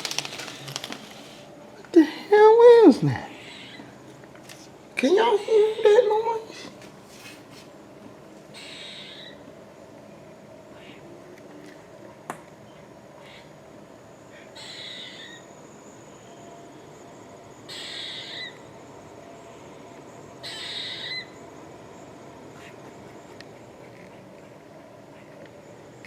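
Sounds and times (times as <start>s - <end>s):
bird hoarse crying call: 8.5s - 9.4s, 14.4s - 15.5s, 17.7s - 18.7s, 20.4s - 21.4s.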